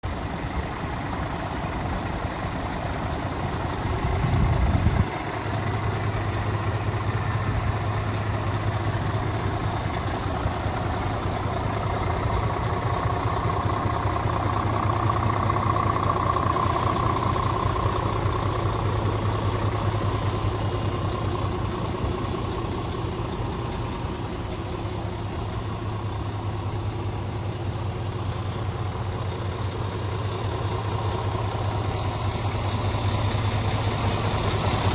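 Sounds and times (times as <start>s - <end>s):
diesel truck engine idling: 0.0s - 34.9s
hiss of air: 16.4s - 21.7s.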